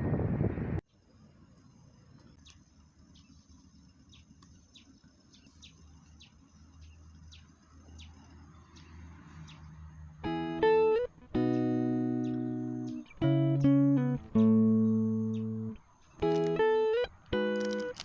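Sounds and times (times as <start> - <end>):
faint bird chirps: 11.9 - 16.2.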